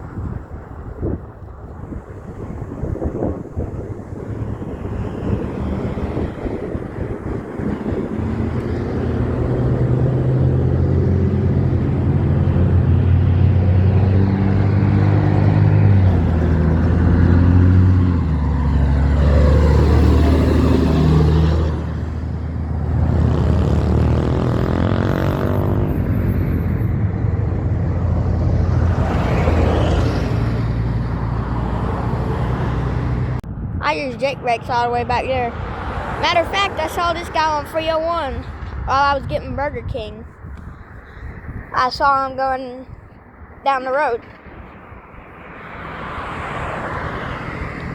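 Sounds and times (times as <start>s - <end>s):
truck engine braking: 15.1s - 27.0s.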